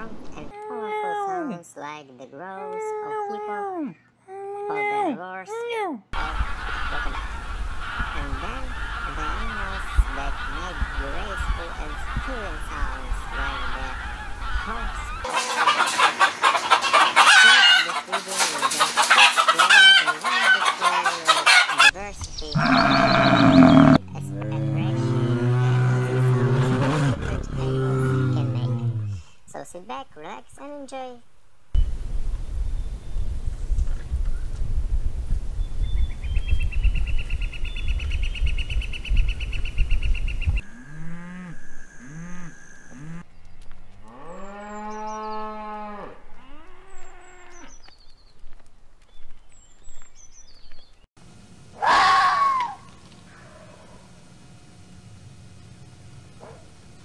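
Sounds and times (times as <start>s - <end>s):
wind rumbling on microphone: 6.2s - 15.3s, 31.8s - 40.8s
chickens clucking: 6.2s - 24.0s
low animal calls: 22.5s - 24.0s, 40.6s - 43.3s.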